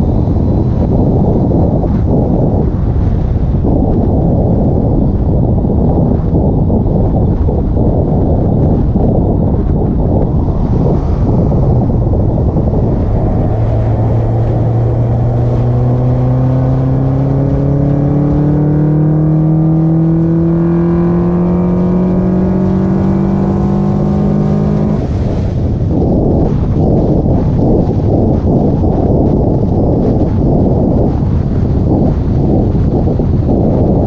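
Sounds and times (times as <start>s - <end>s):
wind and road rush: 0.0s - 34.0s
car engine intake roar: 9.6s - 27.3s.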